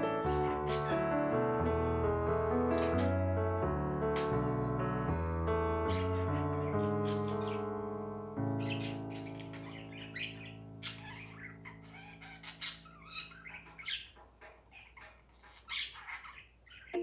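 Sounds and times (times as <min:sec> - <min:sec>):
held musical chord: 0:00.0 - 0:11.4
birds chirping and squawking: 0:00.0 - 0:17.0.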